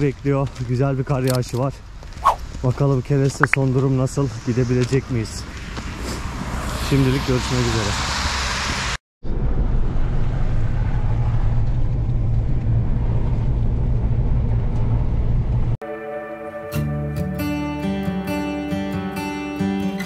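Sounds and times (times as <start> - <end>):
car engine and road noise: 0.0 - 15.8
acoustic guitar music: 15.8 - 20.0.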